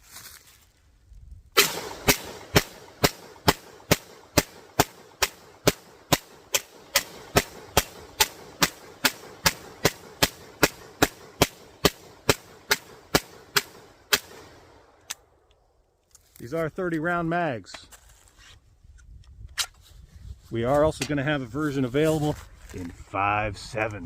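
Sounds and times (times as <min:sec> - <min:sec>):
pistol firing: 0:01.6 - 0:15.0.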